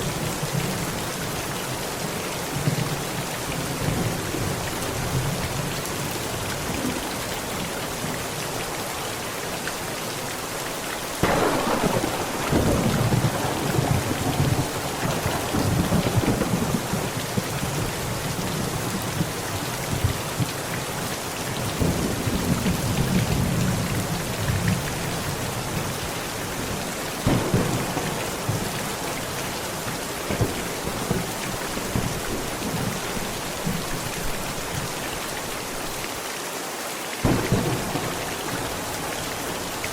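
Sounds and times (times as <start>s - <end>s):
heavy rain on a tent: 0.0s - 39.9s
thunder cracking and rumbling: 11.2s - 20.5s, 26.6s - 34.4s, 37.2s - 39.9s.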